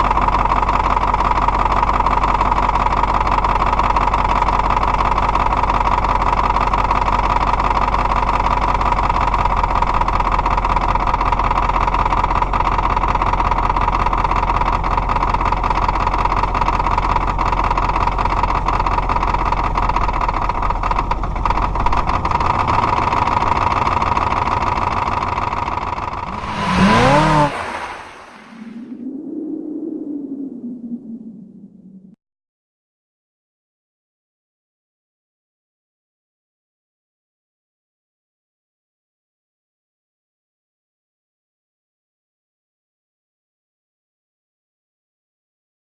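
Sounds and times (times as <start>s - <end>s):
swooshing effect with sweeping tones: 26.3s - 29.1s.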